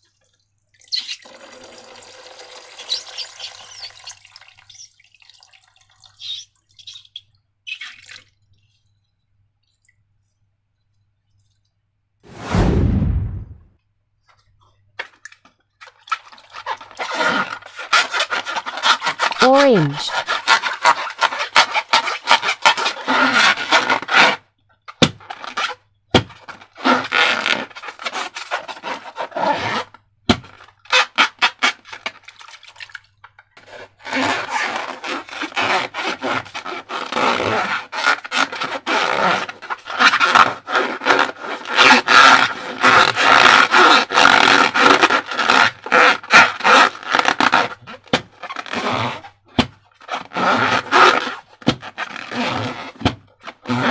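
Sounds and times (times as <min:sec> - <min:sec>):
balloons and slime squeaking: 0:02.8 - 0:04.9, 0:06.2 - 0:08.0, 0:16.4 - 0:24.4, 0:25.0 - 0:32.1, 0:34.0 - 0:49.4, 0:50.0 - 0:53.9.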